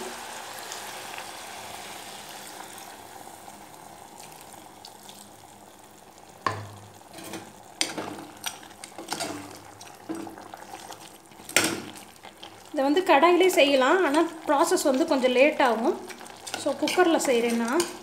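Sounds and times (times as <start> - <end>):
chicken sizzling in a pot: 0.0 - 18.0
metal spoon scraping a pot: 9.0 - 11.0, 16.1 - 18.0.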